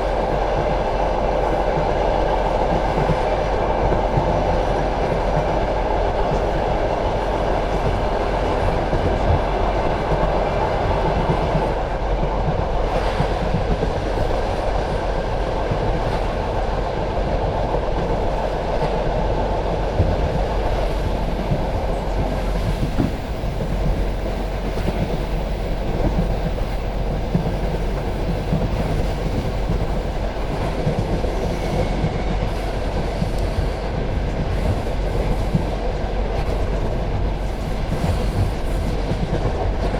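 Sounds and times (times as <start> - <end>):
train wheels rumbling on rail: 0.0 - 39.9
wheels clickety-clack over joints: 15.7 - 39.9.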